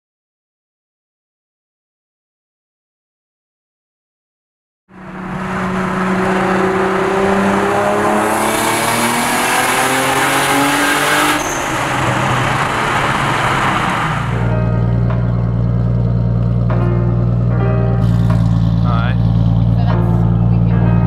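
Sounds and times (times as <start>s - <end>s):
car engine accelerating: 4.9s - 21.0s
road and wind noise: 4.9s - 21.0s.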